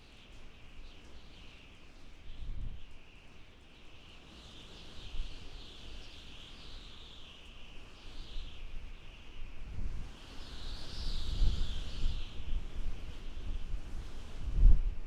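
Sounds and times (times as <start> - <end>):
wind howling and whistling: 4.2 - 15.0
low wind gusts rumbling: 9.4 - 15.0.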